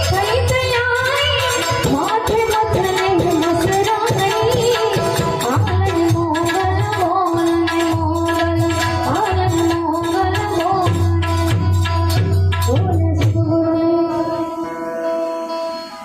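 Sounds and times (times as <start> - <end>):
tabla-style drumming: 0.0 - 14.9
person singing: 12.7 - 16.0.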